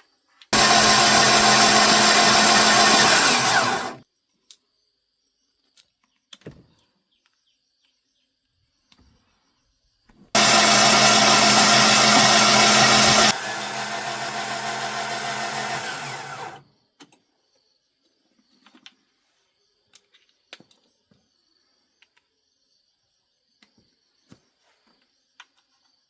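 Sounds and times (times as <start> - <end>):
power tool motor running: 0.6 - 4.0, 10.4 - 16.6.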